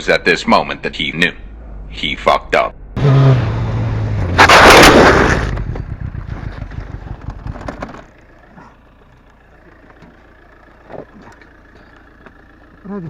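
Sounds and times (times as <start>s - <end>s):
motorcycle crashing onto road: 3.0s - 8.2s
motorcycle engine: 3.0s - 13.0s
scraping and clattering: 4.3s - 8.1s.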